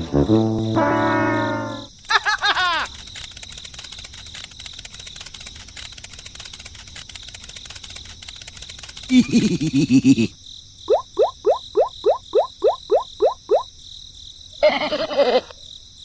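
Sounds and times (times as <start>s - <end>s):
crickets chirring: 0.3s - 16.0s
rapid warbling call: 10.9s - 13.6s
short rising chirps: 10.9s - 13.7s.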